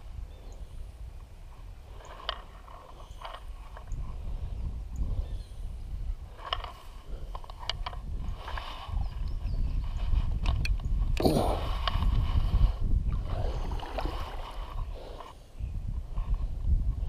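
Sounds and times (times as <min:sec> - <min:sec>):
wind rumble on microphone: 0:00.0 - 0:17.0
paddle swishing through water: 0:11.6 - 0:15.4.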